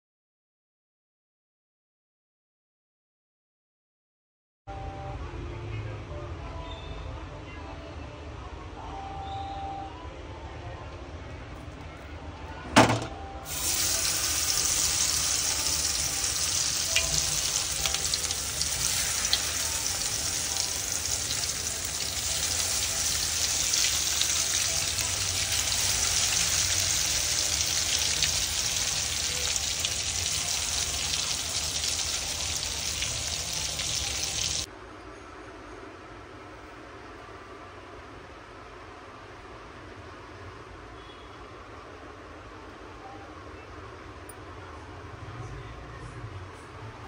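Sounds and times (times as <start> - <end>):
patties sizzling in oil: 13.5 - 34.7.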